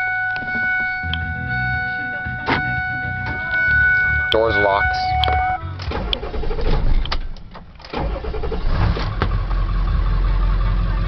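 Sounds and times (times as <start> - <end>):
diesel engine starting and idling: 0.0 - 11.0.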